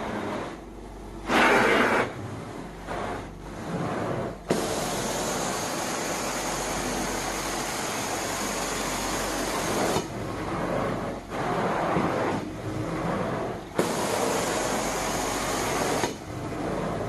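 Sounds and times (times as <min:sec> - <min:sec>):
vacuum hum: 0:00.0 - 0:17.0.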